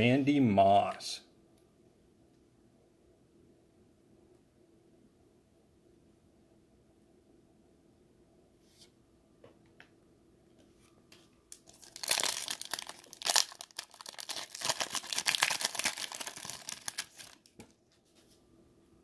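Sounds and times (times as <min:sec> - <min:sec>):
wrapper tearing and crinkling: 0:11.5 - 0:17.6.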